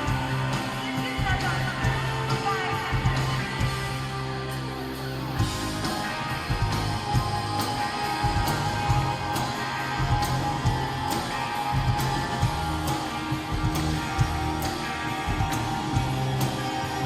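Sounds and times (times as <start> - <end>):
bass guitar: 0.0 - 17.0
electric guitars: 0.0 - 17.0
steady drumbeat: 5.4 - 17.0.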